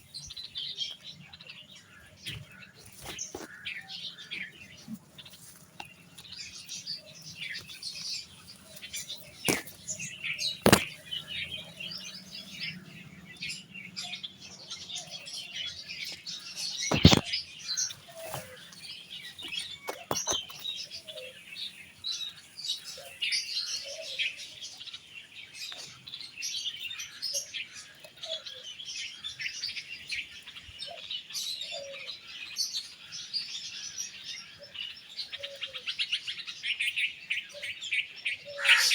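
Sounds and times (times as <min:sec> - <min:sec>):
small birds chirping: 0:00.0 - 0:38.9
sharp knocks: 0:10.6 - 0:10.9, 0:16.9 - 0:17.2.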